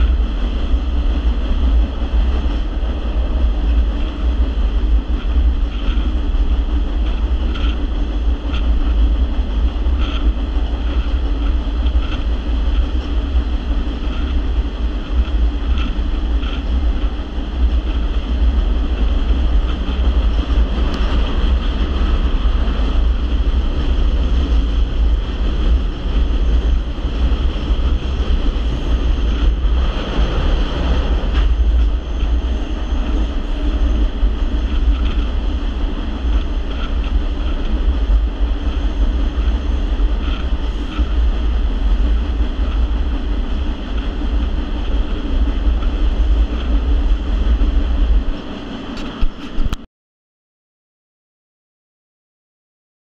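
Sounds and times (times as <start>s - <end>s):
train wheels rumbling on track: 0.0s - 49.9s.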